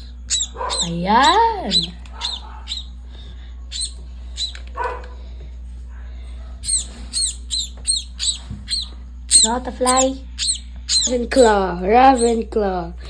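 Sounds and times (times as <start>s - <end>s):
sparrow chirping: 0.0s - 3.0s, 3.7s - 4.6s, 6.6s - 12.4s.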